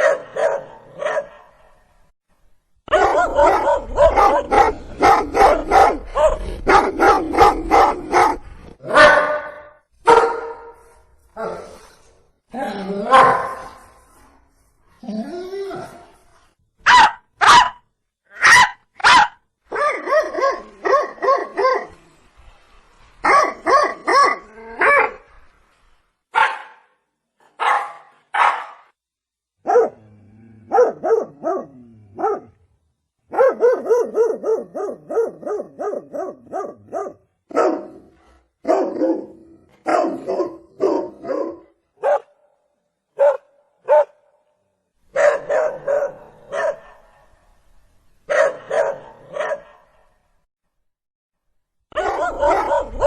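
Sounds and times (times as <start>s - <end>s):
dogs barking: 0.0s - 1.6s, 2.9s - 10.8s, 13.1s - 13.7s, 16.8s - 17.8s, 18.4s - 21.9s, 23.2s - 25.2s, 26.4s - 26.8s, 27.6s - 28.9s, 29.6s - 30.0s, 30.7s - 32.6s, 33.3s - 38.0s, 38.6s - 42.4s, 43.2s - 44.2s, 45.1s - 47.2s, 48.3s - 50.0s, 51.9s - 53.0s.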